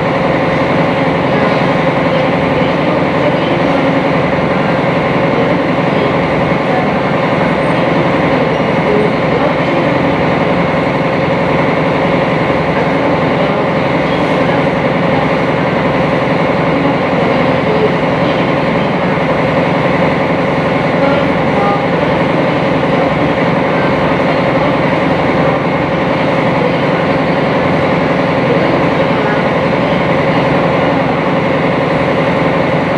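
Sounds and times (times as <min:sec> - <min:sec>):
boat engine droning: 0:00.0 - 0:32.9.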